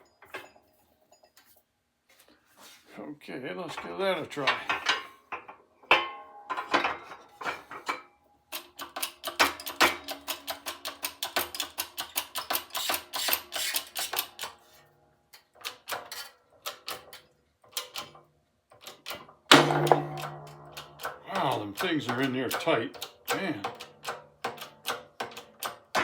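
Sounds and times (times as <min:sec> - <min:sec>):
sharp metal clicks: 0:08.5 - 0:14.6, 0:18.8 - 0:26.0
tools knocking on metal: 0:19.5 - 0:26.0.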